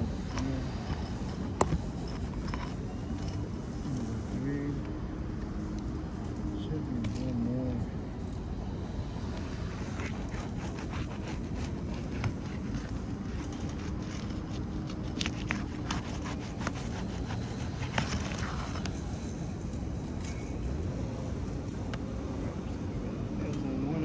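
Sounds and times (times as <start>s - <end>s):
metal tool scraping and clicking: 0.0s - 3.5s, 9.8s - 19.0s.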